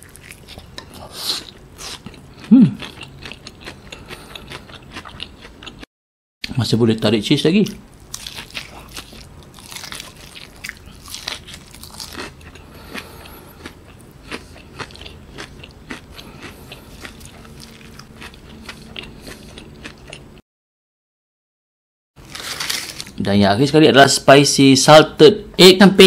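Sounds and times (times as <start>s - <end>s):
person chewing crunchy food: 0.0s - 5.9s, 7.9s - 20.4s, 22.2s - 23.2s.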